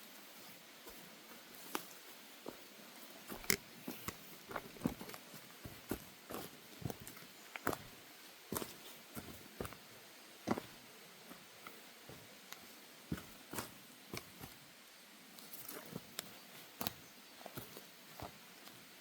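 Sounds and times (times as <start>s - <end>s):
footsteps on wooden boardwalk: 0.9s - 9.8s, 10.5s - 12.3s, 16.8s - 18.4s.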